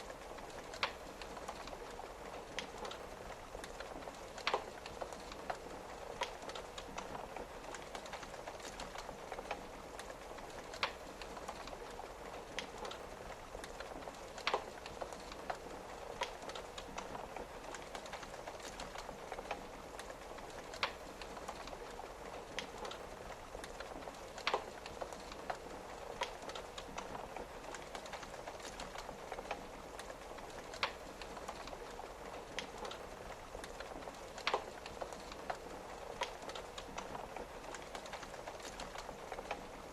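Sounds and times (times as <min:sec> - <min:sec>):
rain pattering on a window: 0:00.0 - 0:39.9
wood fire crackling: 0:00.0 - 0:39.9.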